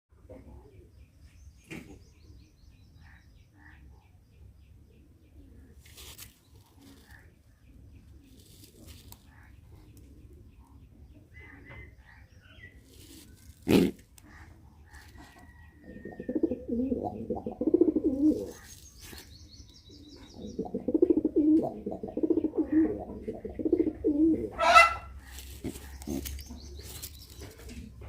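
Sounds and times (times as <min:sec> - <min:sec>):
sharp rustle: 0:05.8 - 0:07.2, 0:25.2 - 0:27.9
pigeon cooing: 0:15.4 - 0:18.7, 0:20.0 - 0:27.8.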